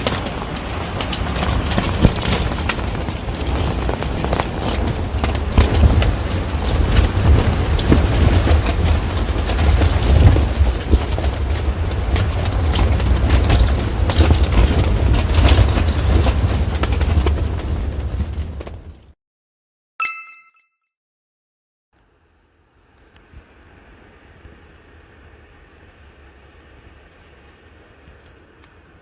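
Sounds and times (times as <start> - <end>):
tent fabric rattling and flapping: 0.0 - 19.2.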